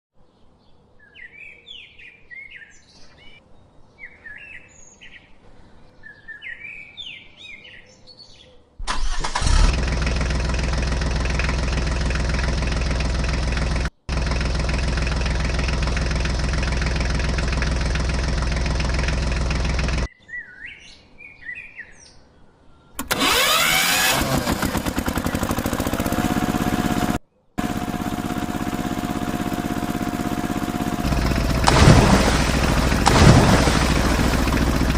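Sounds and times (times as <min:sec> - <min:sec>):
machine engine running: 0:09.3 - 0:20.1, 0:23.0 - 0:34.9
birds chirping: 0:25.0 - 0:26.4.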